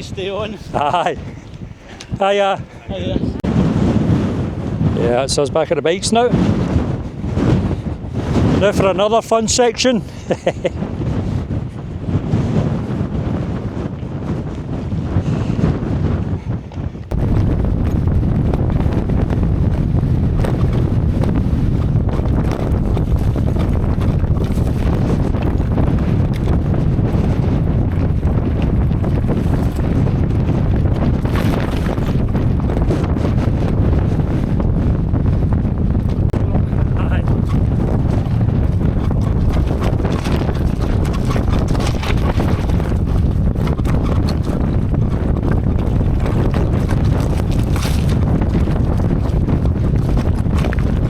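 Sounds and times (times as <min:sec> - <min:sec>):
wind buffeting microphone: 0:00.0 - 0:51.0
bike rattling on stony track: 0:20.4 - 0:34.1, 0:37.3 - 0:51.0
bicycle clattering and rattling: 0:38.8 - 0:48.6.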